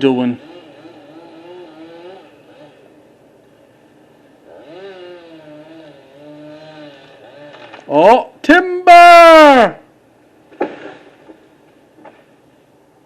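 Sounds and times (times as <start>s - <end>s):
distant chainsaw revving: 0.0s - 3.1s, 4.4s - 7.9s.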